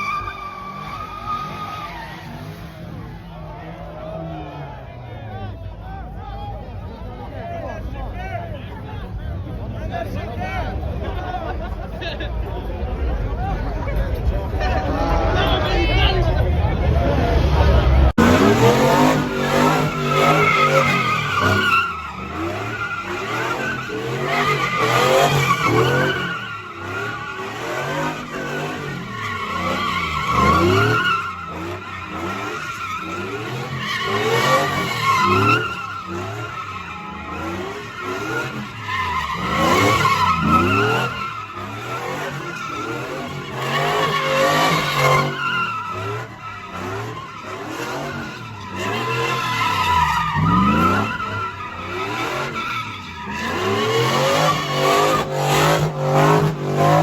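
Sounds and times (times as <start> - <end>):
tyres squealing: 0.0 - 2.9, 18.2 - 57.0
car engine revving: 12.6 - 57.0.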